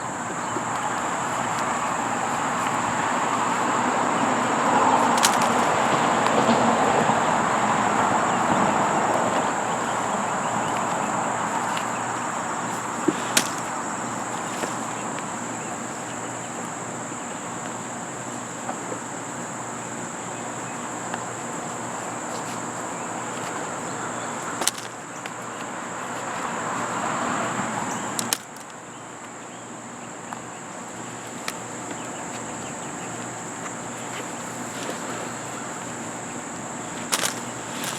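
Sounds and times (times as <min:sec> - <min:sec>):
broad rushing noise: 0:00.0 - 0:15.4
insects droning: 0:00.0 - 0:37.9
sharp clicks: 0:05.1 - 0:05.8, 0:13.3 - 0:13.8, 0:28.2 - 0:28.7.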